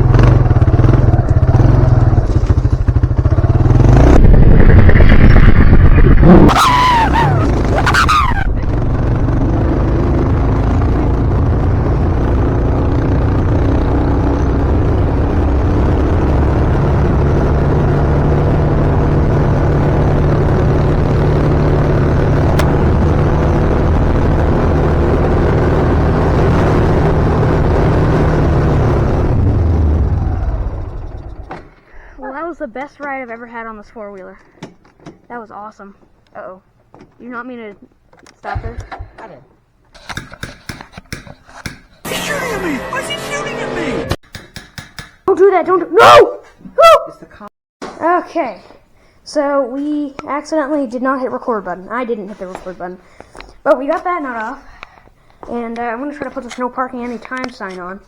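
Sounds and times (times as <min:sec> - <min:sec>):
atv engine running: 0:00.0 - 0:34.6.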